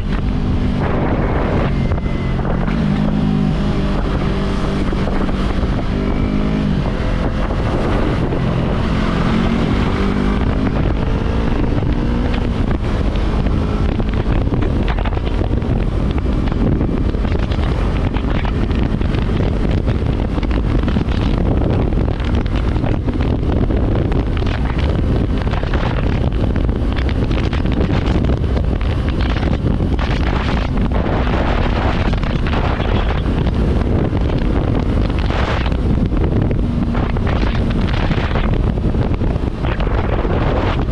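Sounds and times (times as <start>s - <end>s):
motorcycle engine accelerating: 0.0s - 40.9s
wind noise on microphone: 0.0s - 40.9s.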